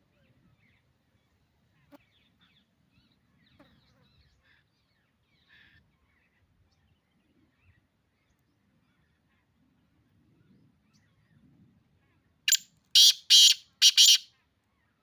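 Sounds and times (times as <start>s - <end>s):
distant birdsong chirps and trills: 12.5s - 14.3s
harsh bird call: 12.5s - 14.3s.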